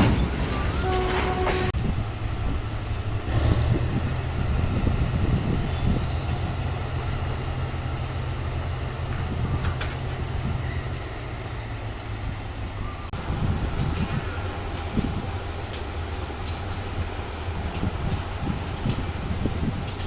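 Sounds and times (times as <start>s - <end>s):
large diesel engine rumbling: 0.0s - 20.0s.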